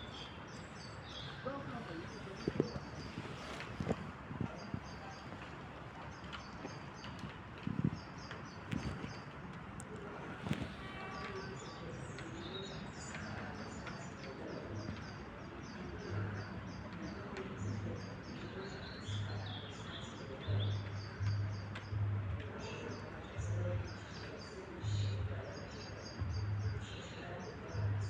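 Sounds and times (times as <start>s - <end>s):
songbirds chirping: 0.0s - 28.0s.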